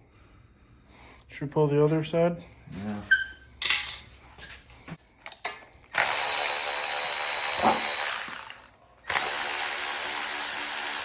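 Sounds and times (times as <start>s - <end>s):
hand-held power tool running: 5.9s - 11.0s.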